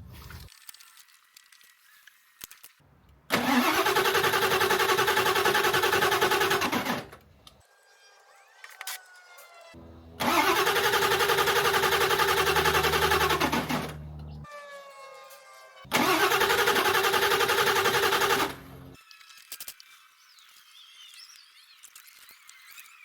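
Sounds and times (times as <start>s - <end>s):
diesel engine starter cranking: 3.3s - 7.2s, 10.2s - 14.4s, 15.9s - 19.0s.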